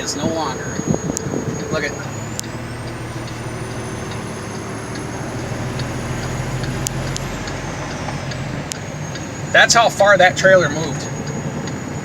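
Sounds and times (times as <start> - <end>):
faint clicks: 0.0 - 9.5
diesel truck engine running: 0.0 - 12.0.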